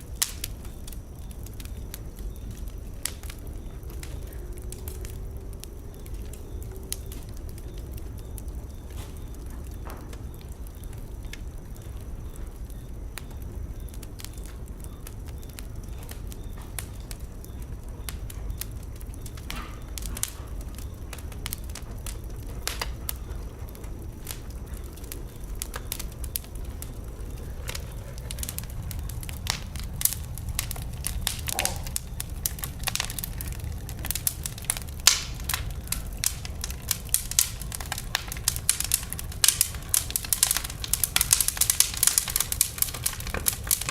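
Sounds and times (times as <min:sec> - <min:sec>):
fire crackling and popping: 0:00.0 - 0:43.9
fire rumbling: 0:00.0 - 0:43.9.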